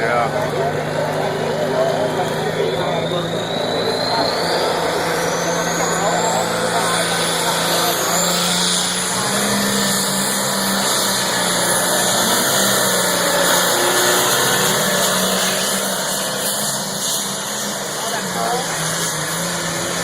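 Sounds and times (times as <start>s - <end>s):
tractor engine at high revs: 0.0s - 20.0s.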